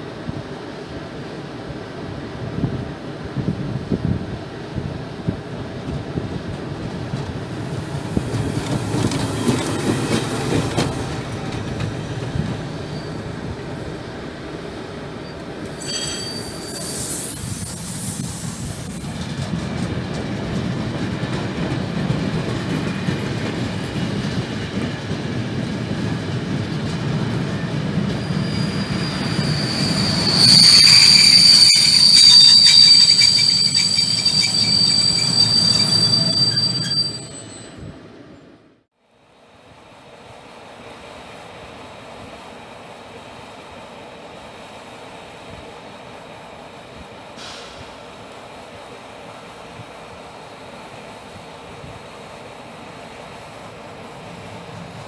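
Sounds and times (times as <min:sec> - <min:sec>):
train wheels rumbling on rail: 0:00.0 - 0:38.6, 0:39.6 - 0:55.0
high-pitched wheel squeal: 0:15.2 - 0:17.8, 0:28.1 - 0:37.9.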